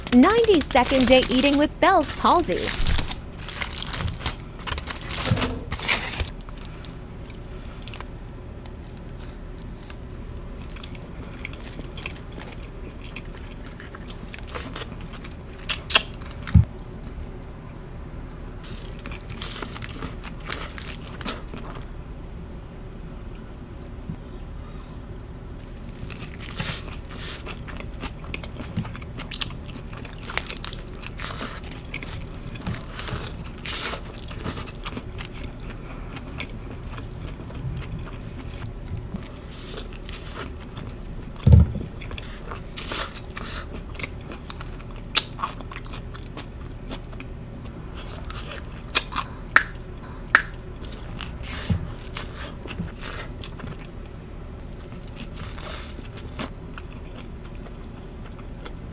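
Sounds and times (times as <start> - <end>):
wet chewing: 10.6 - 17.4, 25.9 - 58.8.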